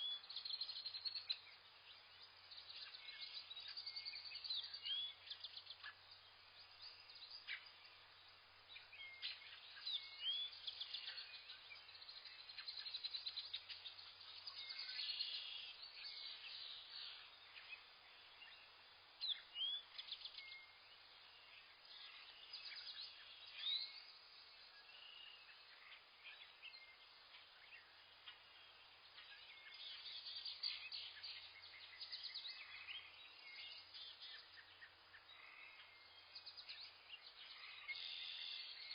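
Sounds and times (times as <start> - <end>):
small songbirds chirping: 0.0 - 38.9.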